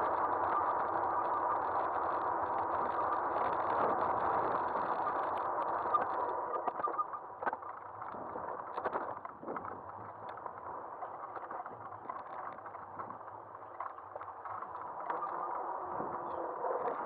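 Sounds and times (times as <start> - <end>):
faint steady whine: 0.0 - 17.0
wind and rolling noise: 0.0 - 17.0.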